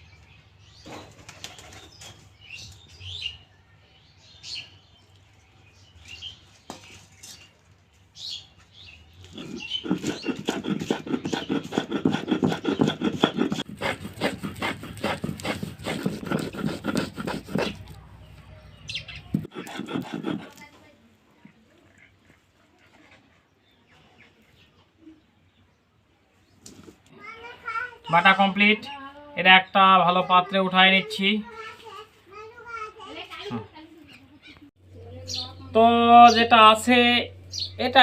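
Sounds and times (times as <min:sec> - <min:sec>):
rhythmic grinding strokes: 0:09.3 - 0:17.8.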